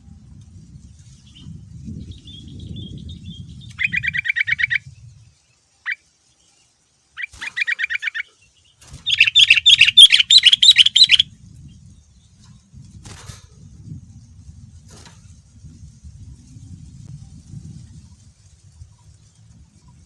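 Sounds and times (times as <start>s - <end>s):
bulbul singing rapid notes: 2.4s - 4.9s, 7.2s - 8.3s, 8.9s - 11.2s.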